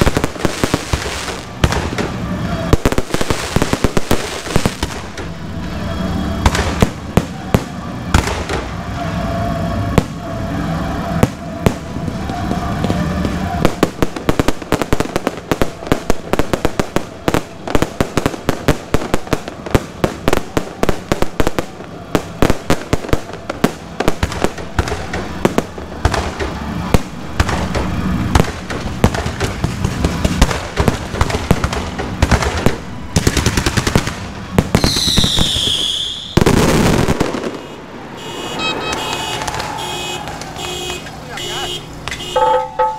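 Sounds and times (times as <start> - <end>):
firework bursts and crackling: 0.0 - 42.3
falling firework whistle: 4.6 - 15.9, 34.6 - 41.6.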